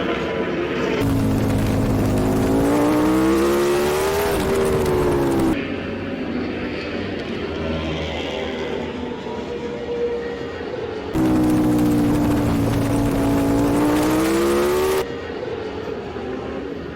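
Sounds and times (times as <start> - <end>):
superbike engine at full throttle: 1.0 - 5.6, 11.2 - 15.0.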